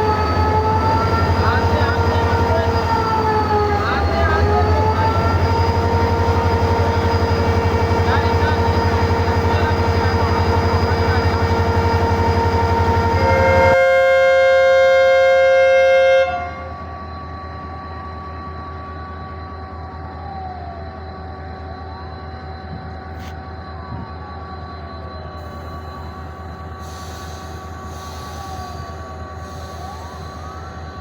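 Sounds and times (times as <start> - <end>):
diesel locomotive engine throbbing: 0.0 - 31.0
faint train squeals: 0.0 - 31.0
train rumble: 0.0 - 31.0
train horn chord: 13.0 - 16.8.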